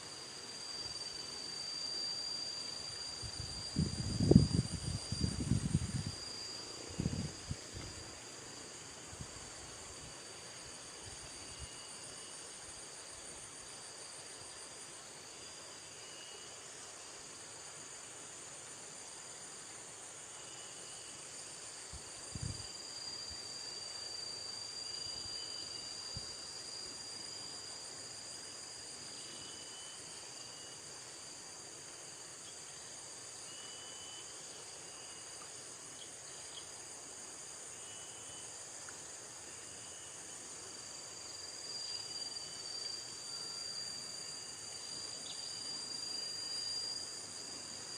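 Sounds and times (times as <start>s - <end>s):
insects chorus: 0.0s - 47.9s.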